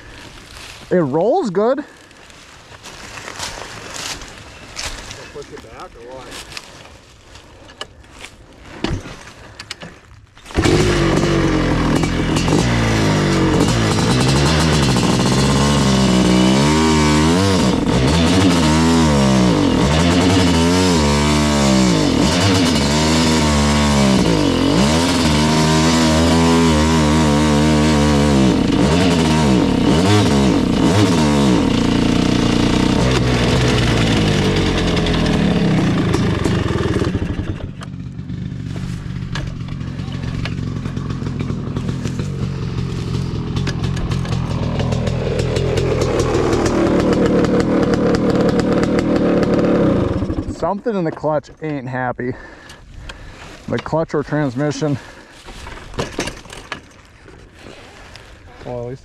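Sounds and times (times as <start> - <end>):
two-stroke motorcycle engine revving: 10.5 - 50.9.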